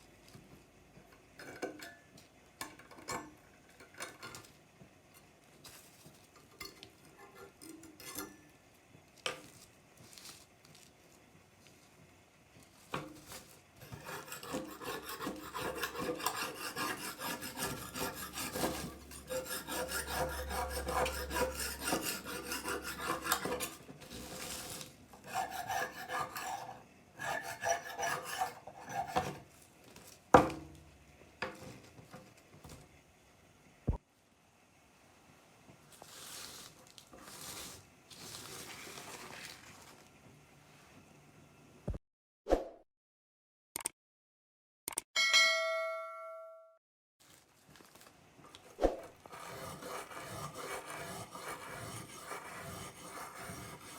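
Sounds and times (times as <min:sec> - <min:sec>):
blade scraping strokes: 0:13.4 - 0:29.4, 0:48.8 - 0:53.9
small clicks: 0:43.8 - 0:44.0, 0:44.9 - 0:45.1.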